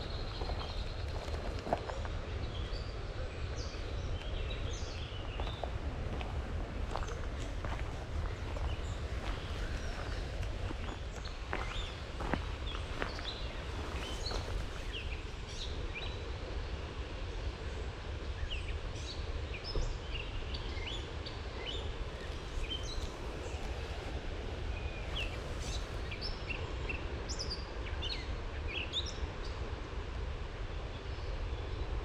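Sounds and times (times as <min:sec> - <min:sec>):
low rumble: 0:00.0 - 0:15.3
songbirds chirping and whistling: 0:00.0 - 0:16.2.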